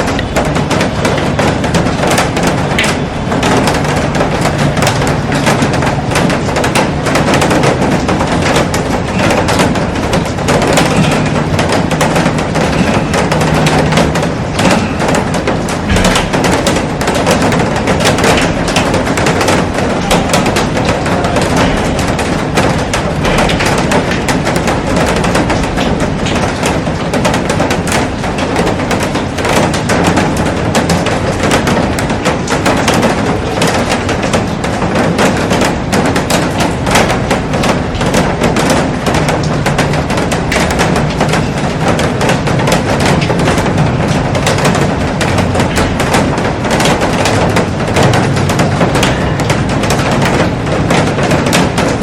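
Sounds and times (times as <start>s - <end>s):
heavy rain on a glass roof: 0.0s - 52.0s
rain pattering on plants: 0.0s - 52.0s.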